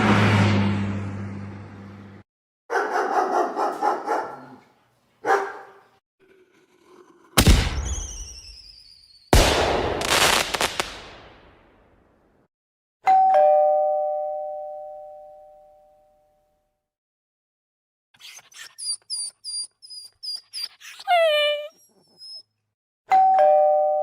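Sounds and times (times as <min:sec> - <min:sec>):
two-tone doorbell chime: 0:13.1 - 0:16.4, 0:23.1 - 0:24.0.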